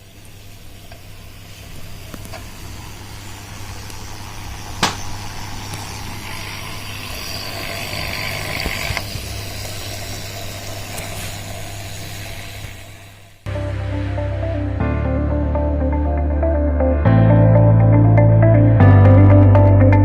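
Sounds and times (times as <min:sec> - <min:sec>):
water hissing and fizzing: 0:00.0 - 0:13.4
low hum: 0:11.6 - 0:20.0.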